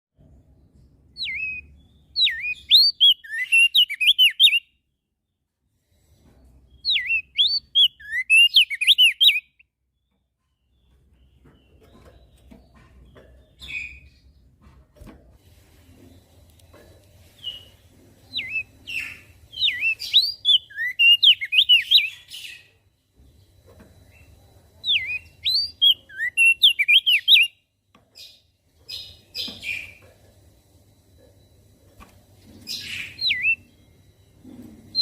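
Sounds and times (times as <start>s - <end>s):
bird warbling chirps: 1.2s - 4.6s, 18.3s - 22.7s, 32.7s - 33.7s
faint low hum: 9.8s - 35.0s.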